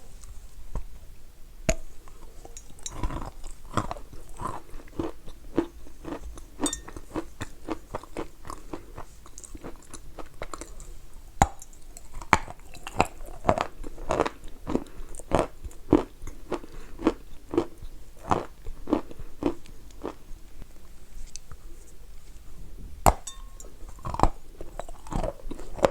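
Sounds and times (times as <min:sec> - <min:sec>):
chalk being chewed with crunch: 0:02.1 - 0:20.2, 0:23.9 - 0:25.9.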